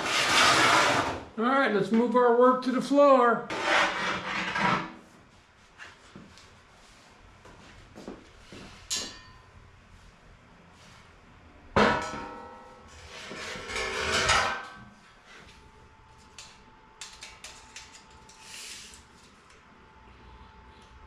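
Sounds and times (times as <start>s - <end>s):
steel pieces clanking and ringing: 8.9s - 9.5s, 11.9s - 12.9s.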